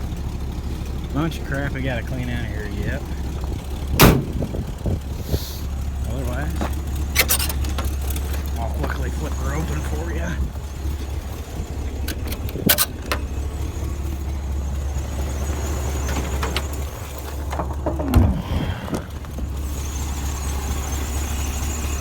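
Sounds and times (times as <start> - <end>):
truck engine idling: 0.0 - 22.0
metal clanks and creak: 0.5 - 22.0
metal clicks: 6.6 - 8.6, 12.0 - 13.3.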